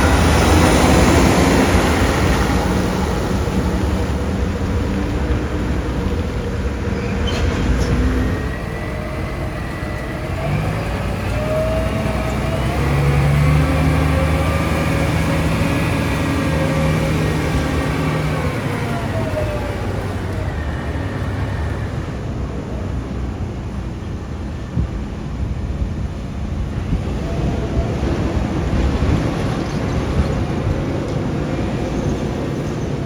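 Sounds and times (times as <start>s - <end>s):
diesel truck engine running: 0.0s - 24.9s.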